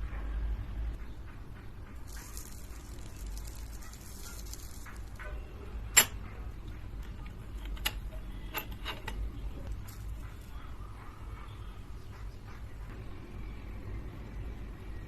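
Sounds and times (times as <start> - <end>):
kitchen utensils clicking: 2.1 - 6.3, 7.0 - 10.3.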